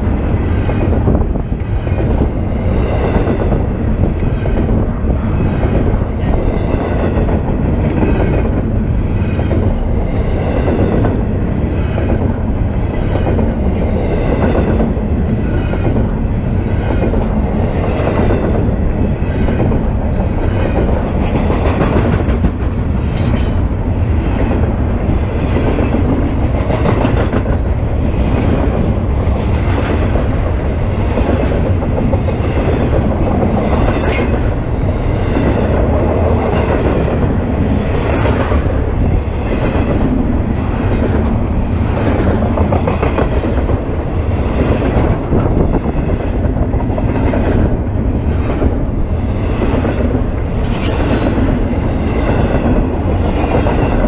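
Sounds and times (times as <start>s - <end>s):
steel wheels rumbling on rail: 0.0s - 54.0s
clanks at rail joints: 10.5s - 34.7s, 35.3s - 44.0s, 44.6s - 54.0s.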